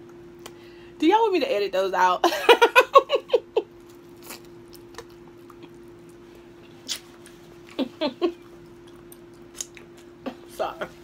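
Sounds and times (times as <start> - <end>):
steady hum: 0.0 - 11.0
eating mouth sounds: 4.1 - 10.2.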